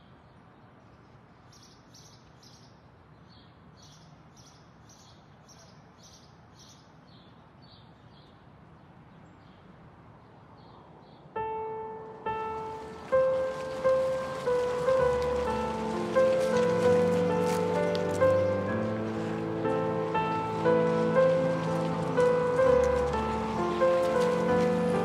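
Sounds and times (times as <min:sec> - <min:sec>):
bird chirping: 0:00.0 - 0:09.7
faint outdoor hiss: 0:00.0 - 0:25.0.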